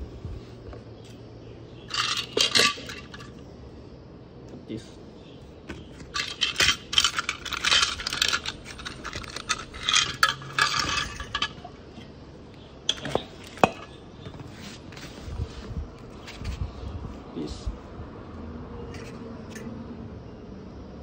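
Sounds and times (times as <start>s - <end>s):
metal parts and tools clinking: 1.8s - 3.4s, 5.7s - 12.2s, 12.8s - 14.4s.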